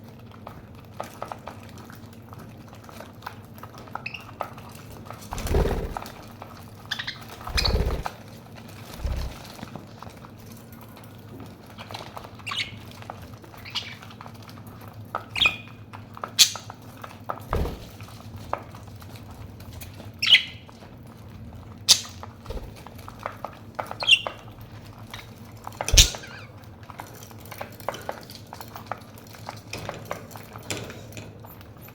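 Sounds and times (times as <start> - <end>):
budgerigars chirping and squawking: 6.9 - 8.1, 12.5 - 12.8, 13.6 - 14.0, 15.4 - 15.7, 16.4 - 16.7, 20.2 - 20.6, 21.8 - 22.2, 24.0 - 24.4, 25.9 - 26.5.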